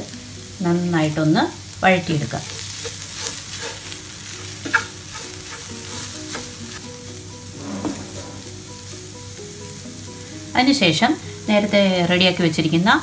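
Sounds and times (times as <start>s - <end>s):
onions sizzling in oil: 0.0s - 13.0s
wooden spatula scraping pan: 4.6s - 8.9s.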